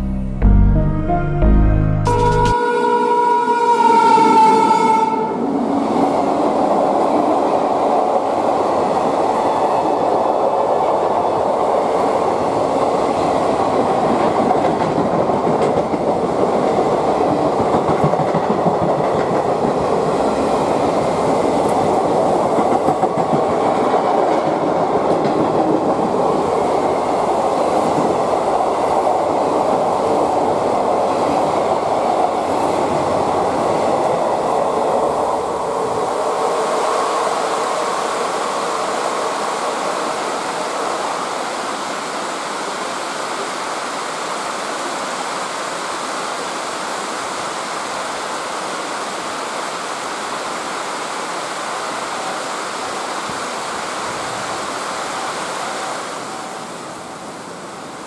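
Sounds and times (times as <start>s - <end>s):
train wheels clattering on rails: 12.5s - 29.9s.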